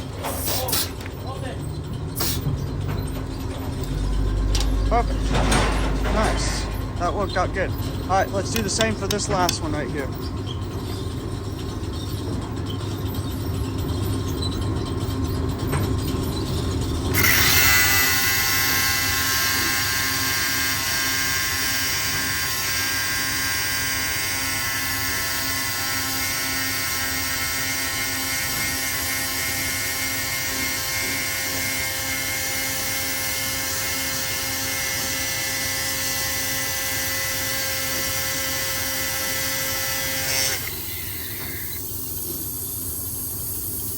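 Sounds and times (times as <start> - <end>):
angle grinder whining: 17.1 - 43.7.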